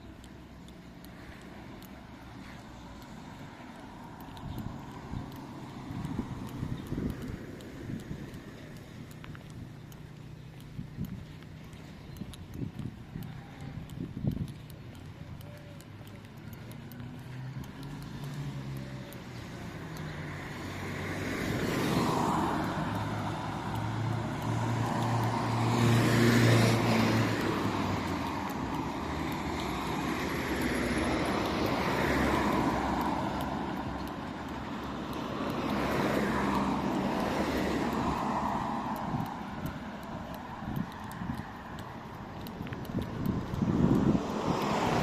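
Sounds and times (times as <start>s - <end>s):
motor vehicles passing: 0.0s - 45.0s.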